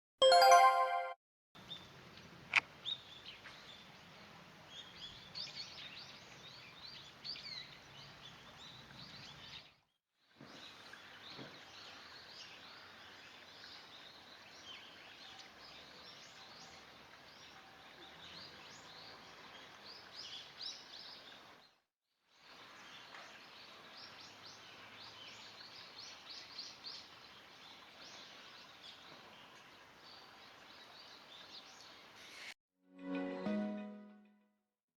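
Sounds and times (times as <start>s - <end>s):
faint outdoor background: 0.2s - 34.6s
small birds chirping: 22.5s - 32.5s.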